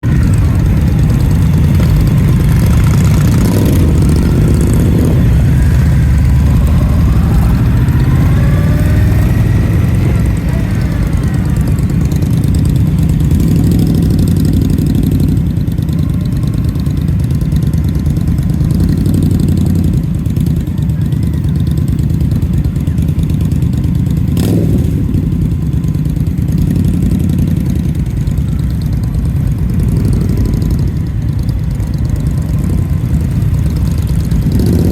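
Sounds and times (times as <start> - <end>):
motorcycle engine running: 0.0 - 34.9
pitched whine: 2.6 - 12.6.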